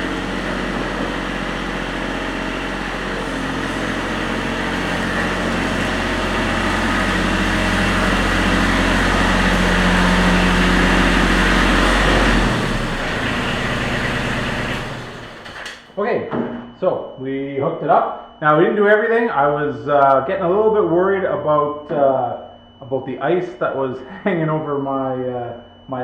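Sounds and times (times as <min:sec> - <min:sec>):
tractor diesel engine running: 0:00.0 - 0:15.8.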